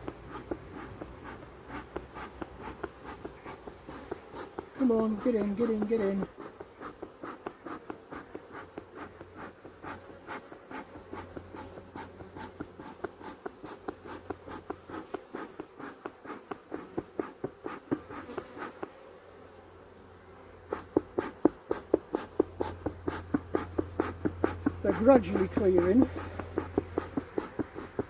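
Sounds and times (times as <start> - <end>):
soft scratching taps: 0.0 - 19.0, 20.7 - 28.0
bees buzzing: 0.0 - 28.0.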